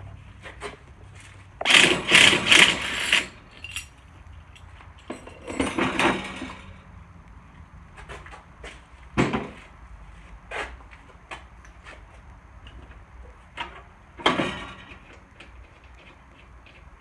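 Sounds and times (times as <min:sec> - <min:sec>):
impact driver rattling: 0:01.6 - 0:03.8.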